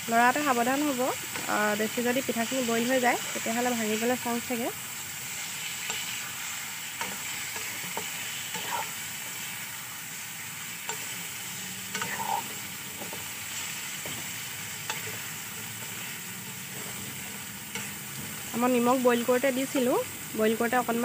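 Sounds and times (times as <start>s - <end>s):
dough sizzling in oil: 0.0s - 21.0s
spatula knocking and scraping a pan: 7.0s - 8.9s, 10.8s - 11.2s, 11.9s - 18.6s.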